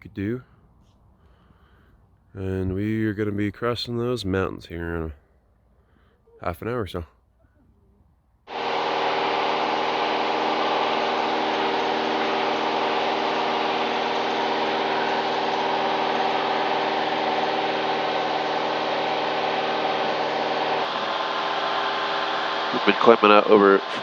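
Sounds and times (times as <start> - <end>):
propeller plane engine droning: 8.5 - 24.0.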